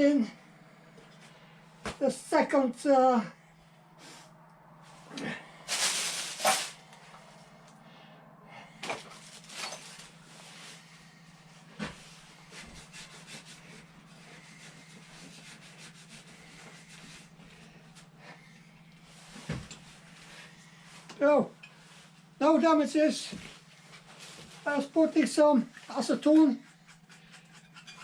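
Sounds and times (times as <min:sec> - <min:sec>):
low steady hum: 0:00.0 - 0:28.0
rubbing and scraping: 0:05.7 - 0:06.8, 0:11.8 - 0:18.2, 0:25.8 - 0:28.0.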